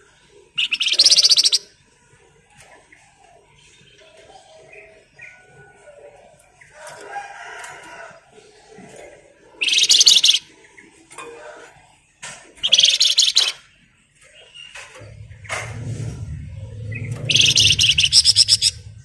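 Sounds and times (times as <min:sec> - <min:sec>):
soft bird chirps: 0:00.6 - 0:01.7, 0:09.6 - 0:11.0, 0:12.6 - 0:15.6, 0:16.7 - 0:19.0
songbird rattling trills: 0:00.6 - 0:01.7, 0:09.6 - 0:10.4, 0:12.6 - 0:13.6, 0:16.6 - 0:19.0.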